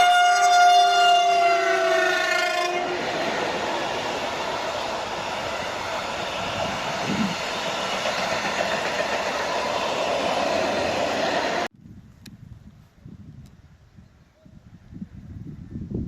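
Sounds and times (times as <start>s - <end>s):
diesel locomotive passing: 0.0s - 11.7s.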